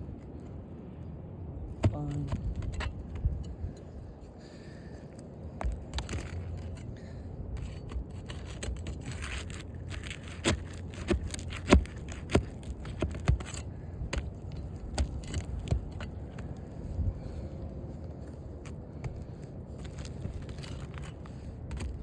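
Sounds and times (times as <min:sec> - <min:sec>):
metal tool scraping shingles: 0:05.6 - 0:16.2.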